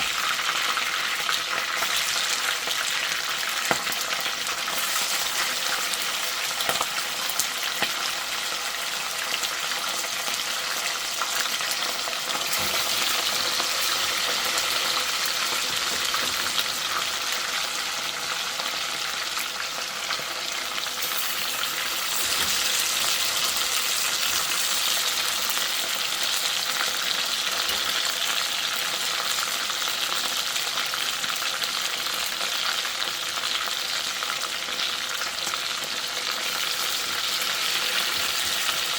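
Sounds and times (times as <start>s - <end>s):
chicken sizzling in hot oil: 0.0s - 38.9s.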